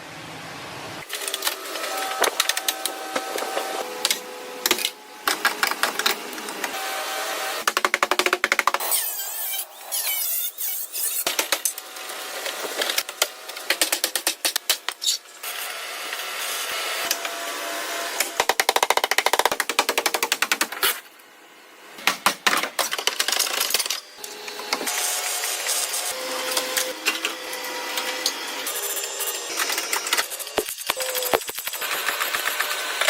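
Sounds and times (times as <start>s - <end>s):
hand tool scraping: 1.6s - 3.8s.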